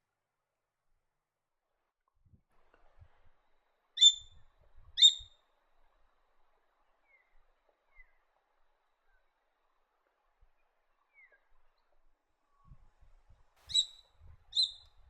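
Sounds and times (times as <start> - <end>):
bird calling sharply: 4.0 - 4.3, 13.7 - 14.8.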